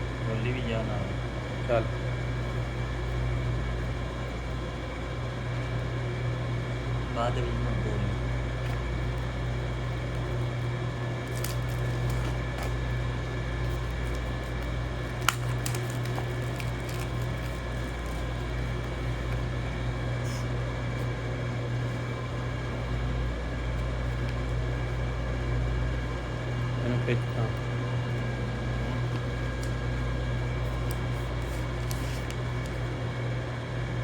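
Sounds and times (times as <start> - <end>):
low electrical hum: 0.0 - 34.0
clicks handling packaging: 11.2 - 12.8, 13.6 - 19.4.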